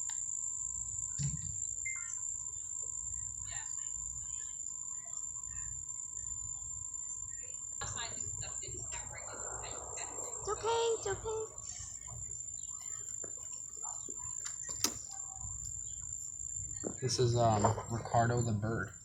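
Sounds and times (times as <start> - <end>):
insects trilling: 0.0 - 19.0
faint bird chirps: 1.1 - 18.8
low rumble: 8.7 - 12.4.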